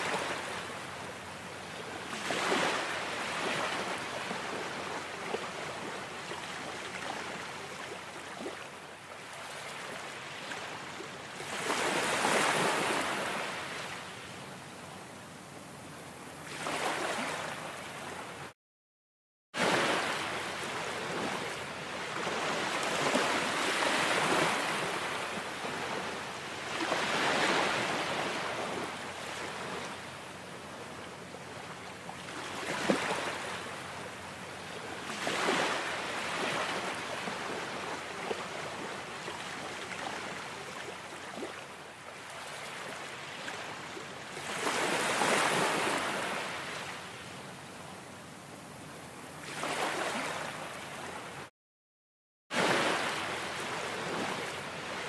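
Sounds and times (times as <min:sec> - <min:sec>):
ocean waves breaking: 0:02.1 - 0:08.7, 0:11.4 - 0:14.0, 0:16.4 - 0:18.2, 0:19.6 - 0:30.0, 0:35.1 - 0:41.6, 0:44.4 - 0:47.0, 0:49.4 - 0:51.3, 0:52.5 - 0:55.0.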